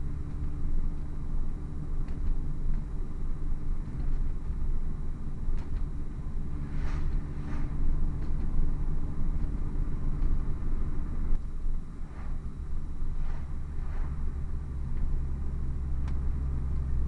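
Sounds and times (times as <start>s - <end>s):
car engine droning: 0.0s - 17.0s
hissy swooshes: 6.6s - 8.0s, 12.0s - 14.5s.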